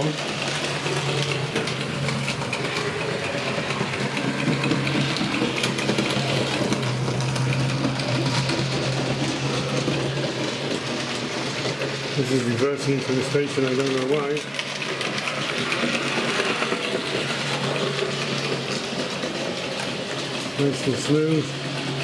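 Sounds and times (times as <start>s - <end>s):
electric motor hum: 0.0s - 12.4s
wheels rattling on rails: 0.0s - 22.0s.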